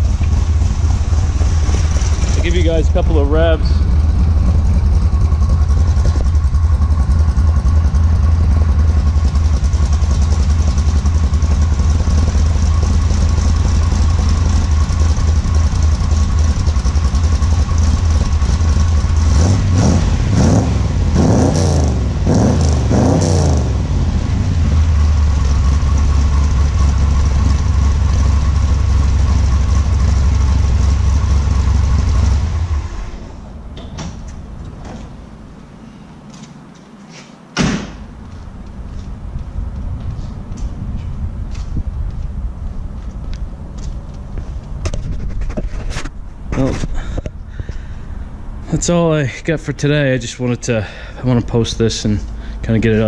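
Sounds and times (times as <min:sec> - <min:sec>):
car engine revving: 0:00.0 - 0:33.4
engine cutting off: 0:00.0 - 0:34.9
car engine idling: 0:00.0 - 0:35.7, 0:46.2 - 0:53.0.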